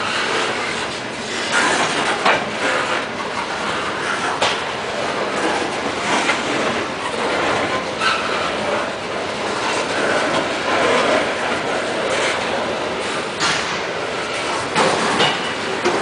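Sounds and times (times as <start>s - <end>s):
train wheels rumbling on rail: 0.0s - 16.0s
wheel squeal: 6.4s - 8.9s.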